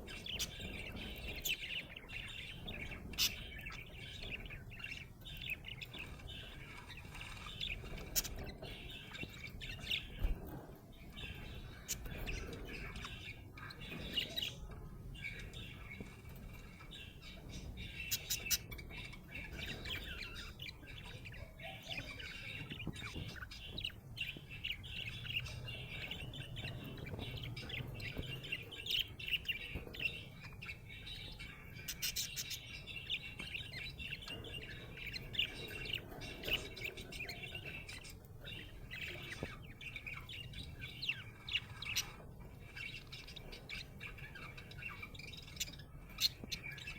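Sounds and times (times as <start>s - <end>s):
budgerigar chirping and warbling: 16.6s - 46.9s.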